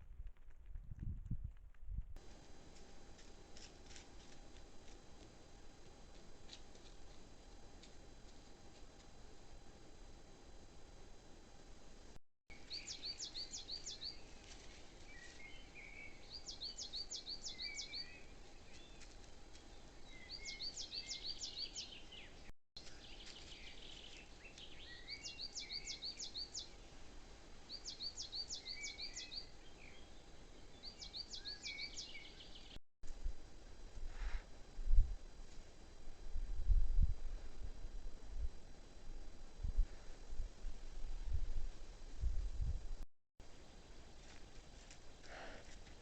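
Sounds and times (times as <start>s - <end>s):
songbird singing high sweeping notes: 12.5s - 14.3s, 15.1s - 19.0s, 20.0s - 26.9s, 27.7s - 32.8s.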